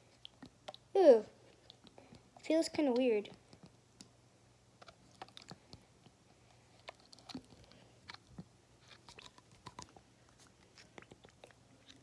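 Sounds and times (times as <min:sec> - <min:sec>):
slime squelching: 0:06.7 - 0:12.0.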